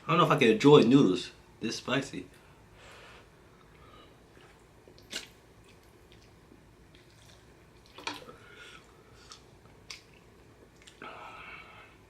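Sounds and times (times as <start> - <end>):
wet mouth eating sounds: 4.3 - 11.0
sharp mouth smacks: 5.0 - 5.4.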